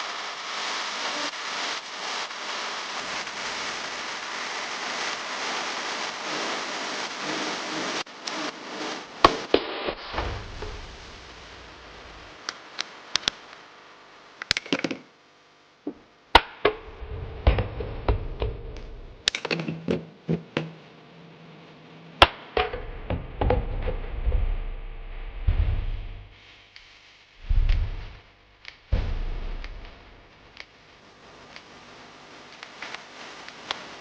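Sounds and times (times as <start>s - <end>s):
dull thuds: 22.6s - 26.4s, 27.4s - 28.3s, 28.9s - 30.3s.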